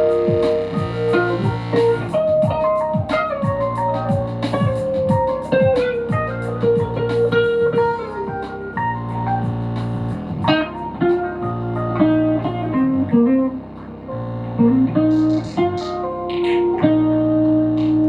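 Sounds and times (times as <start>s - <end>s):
low droning note: 0.0s - 17.8s
picked guitar melody: 0.0s - 18.0s.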